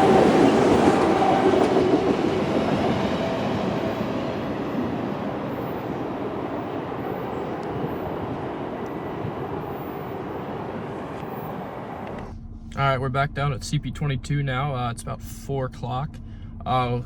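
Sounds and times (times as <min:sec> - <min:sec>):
freight train rumbling past: 0:00.0 - 0:15.2.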